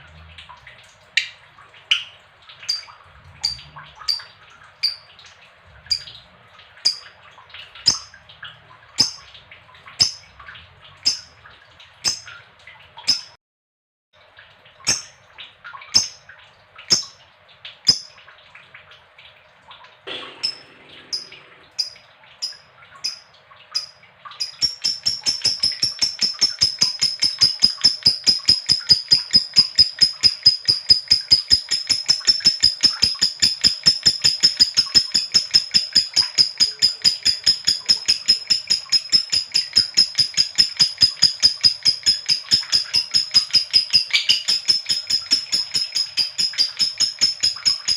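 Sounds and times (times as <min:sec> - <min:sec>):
lovebird chirping: 0:02.7 - 0:05.0, 0:20.4 - 0:23.2, 0:24.4 - 0:47.9.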